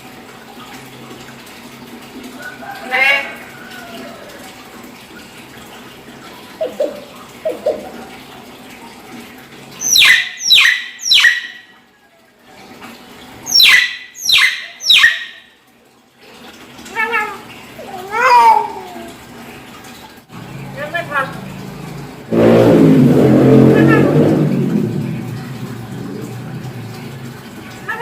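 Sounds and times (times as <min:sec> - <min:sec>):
myna shrill downward calls: 0:09.8 - 0:11.6, 0:13.5 - 0:15.4.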